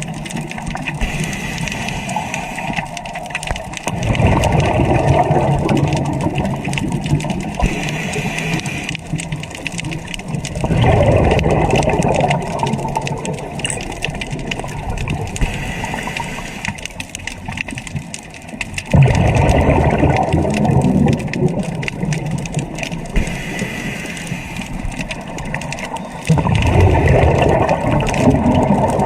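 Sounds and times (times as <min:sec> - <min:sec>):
water sloshing and gushing: 0:00.0 - 0:29.0.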